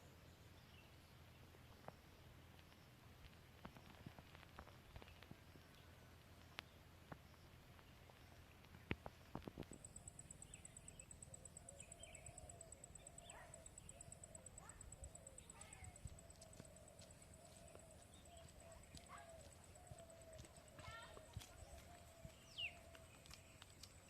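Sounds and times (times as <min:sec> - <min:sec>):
soft low wavering calls: 0:09.6 - 0:24.0.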